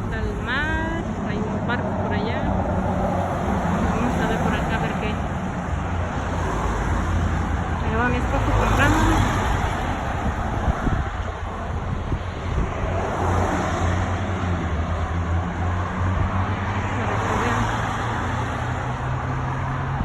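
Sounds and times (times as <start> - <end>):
continuous traffic noise: 0.0 - 20.0
traffic engine hum: 0.0 - 20.0.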